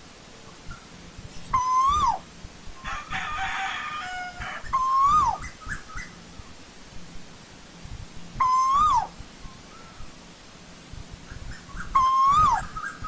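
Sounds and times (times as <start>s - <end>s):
loud bird calls: 8.4s - 10.1s, 11.2s - 13.0s.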